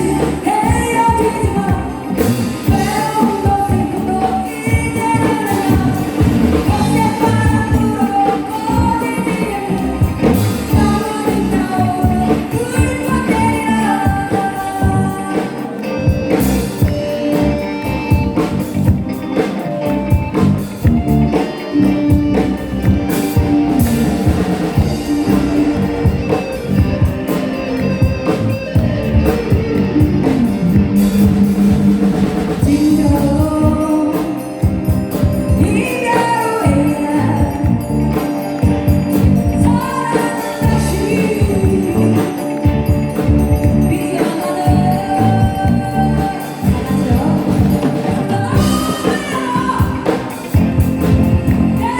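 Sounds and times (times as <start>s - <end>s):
person singing lead: 0.0s - 17.4s, 32.6s - 38.7s, 39.5s - 42.9s, 43.6s - 50.6s
drums: 0.0s - 51.9s
live band playing: 0.0s - 51.9s.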